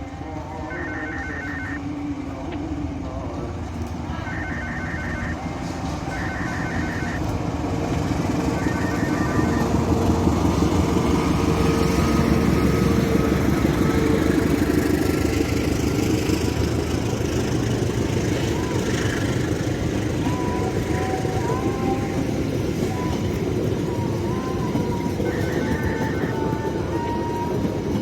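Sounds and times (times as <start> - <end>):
level crossing warning bell: 0.0 - 28.0.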